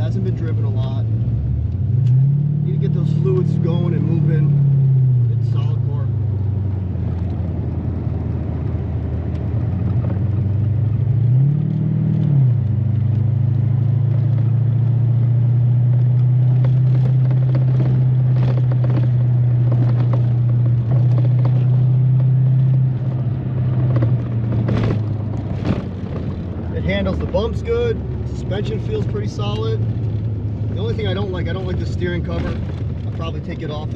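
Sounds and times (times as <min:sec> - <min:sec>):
car engine while driving: 0:00.0 - 0:33.9
road noise inside car: 0:00.0 - 0:33.9
car knocking over bumps: 0:16.0 - 0:33.9.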